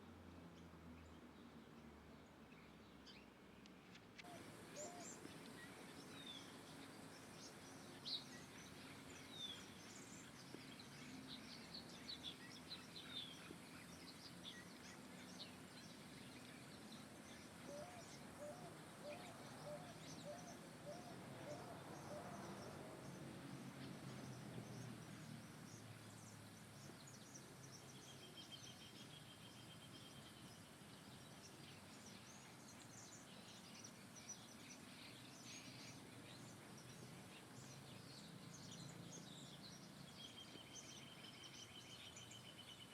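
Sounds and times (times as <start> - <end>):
steady background hiss: 0.0 - 42.9
birds chirping and calling: 4.3 - 31.2.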